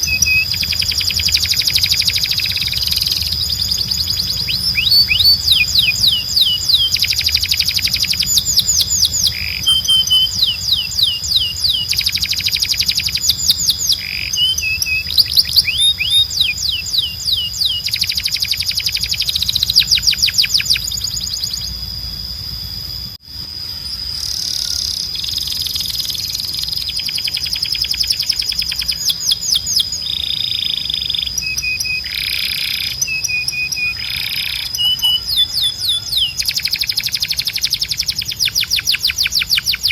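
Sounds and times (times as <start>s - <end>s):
canary singing: 0.0s - 22.9s, 23.6s - 39.9s
steady high tone: 0.0s - 29.2s, 29.9s - 39.9s
low hum: 0.0s - 31.4s.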